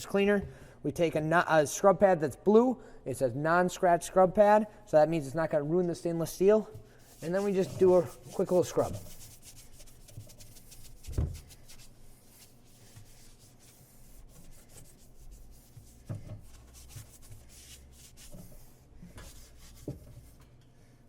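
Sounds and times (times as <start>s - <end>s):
scrub pad scrubbing steel: 6.4s - 18.8s.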